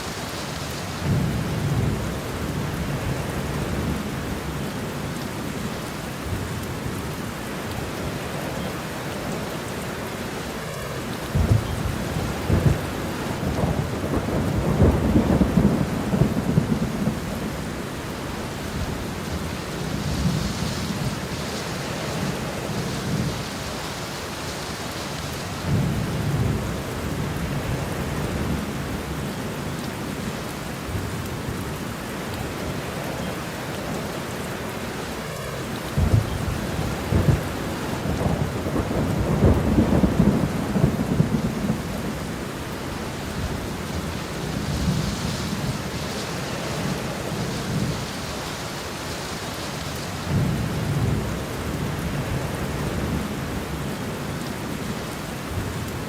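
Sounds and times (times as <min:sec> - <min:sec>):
thunder rumbling: 0:00.0 - 0:04.7, 0:10.7 - 0:29.3, 0:34.6 - 0:49.1, 0:50.0 - 0:54.0
steady rain: 0:00.0 - 0:56.0.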